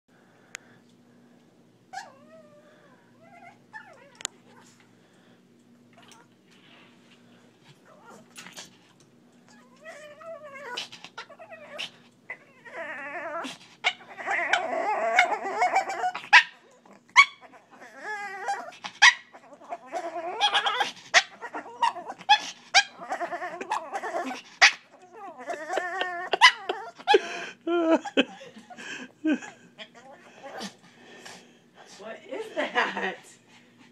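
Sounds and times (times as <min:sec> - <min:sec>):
dog making wavering vocal noises: 0:09.5 - 0:27.2.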